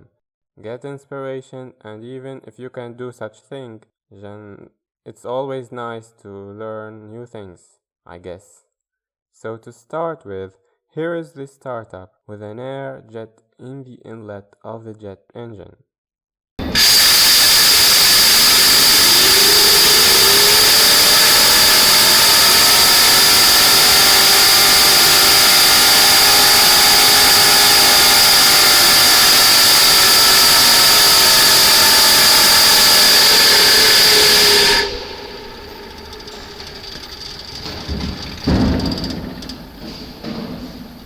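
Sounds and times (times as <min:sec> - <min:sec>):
compressed air hissing: 0:16.6 - 0:41.0
rotor whine: 0:16.6 - 0:41.0.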